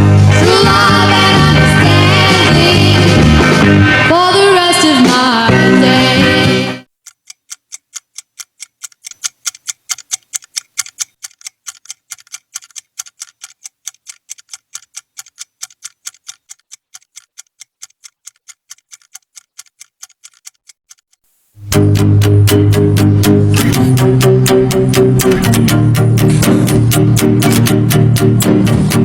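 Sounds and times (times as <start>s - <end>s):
rapid sharp clicking: 7.0s - 21.2s, 22.5s - 29.0s.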